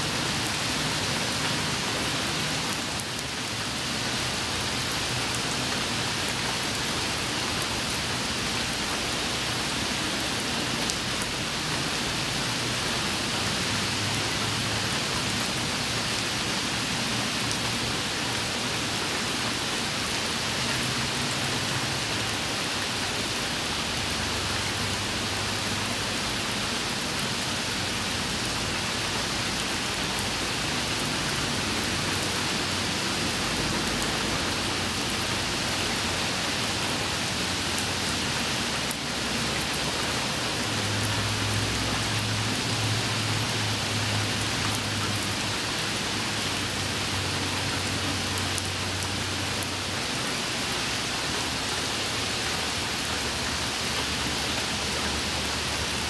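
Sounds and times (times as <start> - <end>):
rain falling on wet pavement: 0.0 - 56.0.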